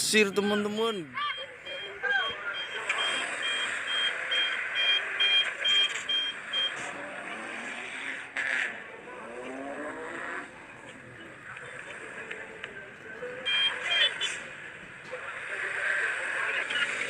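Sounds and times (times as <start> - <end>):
toy high beeps: 0.0 - 6.7.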